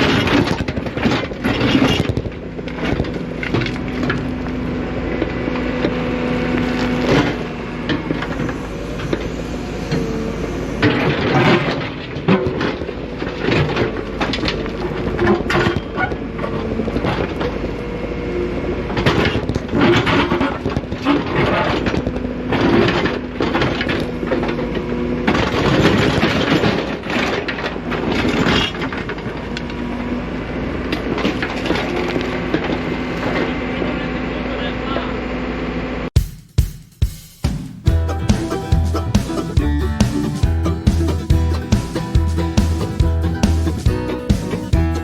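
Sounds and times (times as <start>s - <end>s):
excavator engine humming: 0.0s - 36.0s, 37.9s - 45.0s
bucket scraping gravel and rock: 6.3s - 15.7s.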